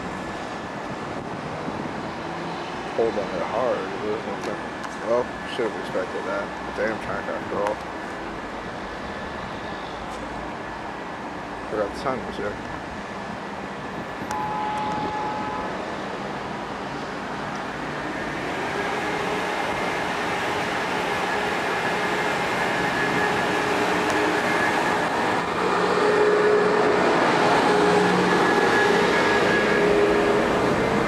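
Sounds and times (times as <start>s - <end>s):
train rumbling past: 0.0s - 31.0s
faint steady whine: 13.9s - 18.3s.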